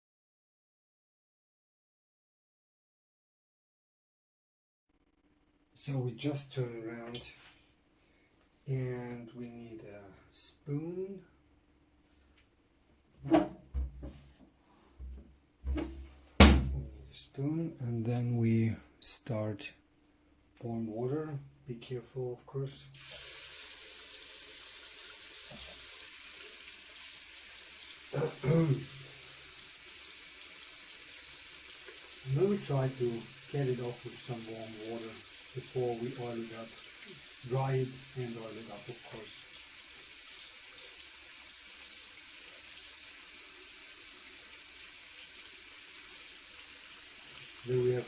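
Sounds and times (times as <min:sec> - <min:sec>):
water running from a tap: 0:23.0 - 0:48.0
man's short voice sound: 0:28.1 - 0:29.0.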